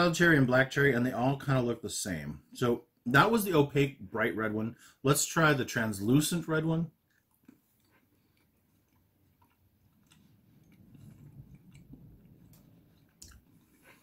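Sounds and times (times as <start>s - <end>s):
chewing jelly bean: 6.9s - 14.0s.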